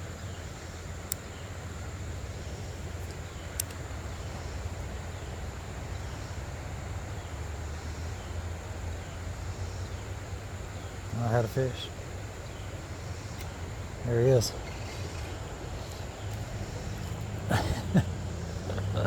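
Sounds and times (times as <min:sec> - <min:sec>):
high insect drone: 0:00.0 - 0:19.0
low rumble of water or wind: 0:00.0 - 0:19.0
sharp clicks: 0:03.0 - 0:03.8.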